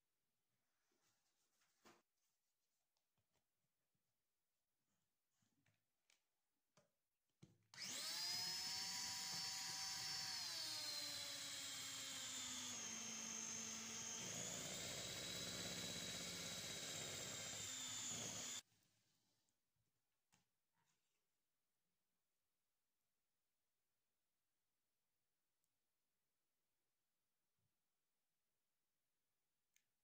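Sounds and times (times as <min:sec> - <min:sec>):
small electric motor running: 0:07.8 - 0:18.6.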